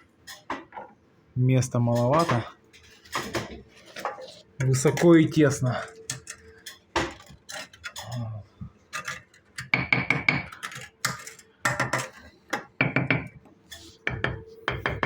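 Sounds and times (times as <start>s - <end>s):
trowel clinking and scraping on brick: 2.0s - 8.3s, 8.9s - 9.7s, 10.4s - 12.4s.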